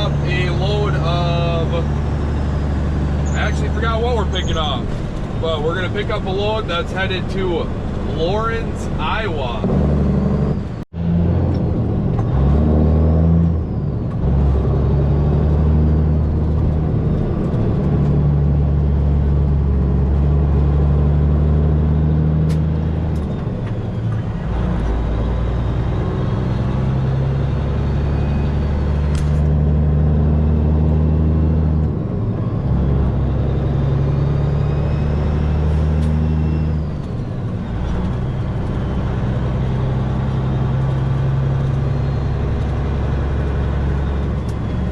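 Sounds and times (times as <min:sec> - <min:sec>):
truck diesel engine droning: 0:00.0 - 0:44.9.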